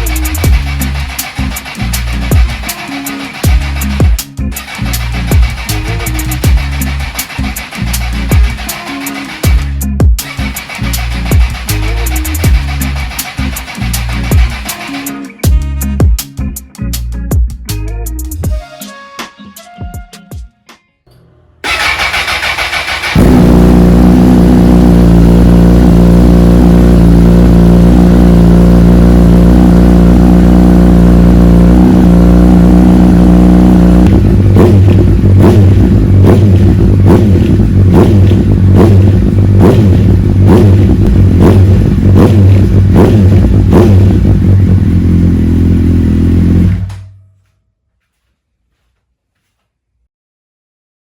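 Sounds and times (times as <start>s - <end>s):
engine pulsing with surges: 0.0s - 15.0s
vehicle engine running: 0.0s - 15.2s, 21.6s - 47.1s.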